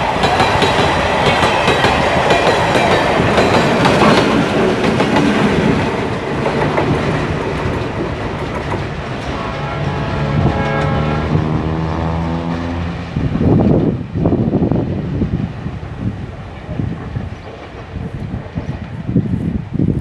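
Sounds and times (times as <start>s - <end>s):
train wheels clattering over rail joints: 0.0s - 9.3s
diesel locomotive engine drone: 0.0s - 19.8s.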